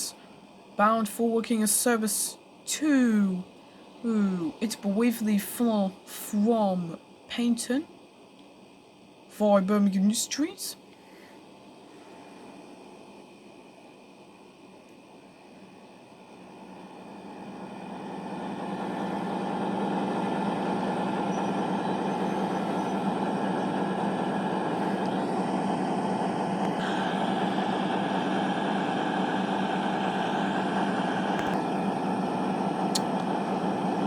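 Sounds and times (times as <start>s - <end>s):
train diesel engines humming: 0.0s - 8.1s, 15.4s - 34.0s.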